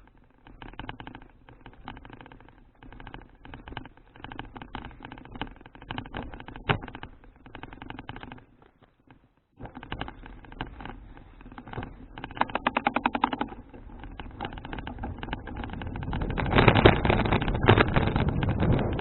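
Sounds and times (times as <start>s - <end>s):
bicycle ticking: 0.0s - 19.0s
wind on microphone: 13.5s - 19.0s.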